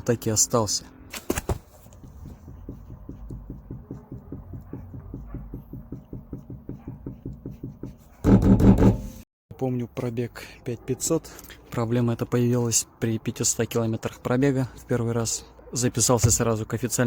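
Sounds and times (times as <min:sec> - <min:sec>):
wheel bearing knocking rhythmically: 0:02.0 - 0:09.2.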